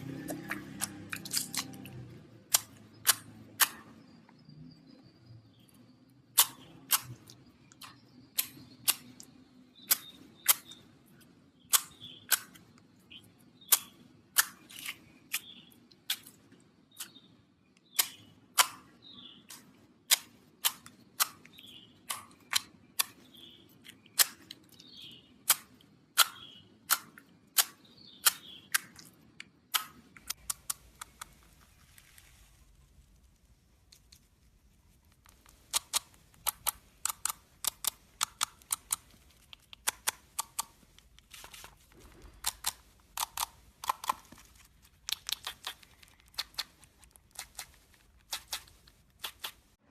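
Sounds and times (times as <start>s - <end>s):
soft squishing of slime: 6.4s - 49.9s
slime popping and clicking: 45.0s - 49.6s.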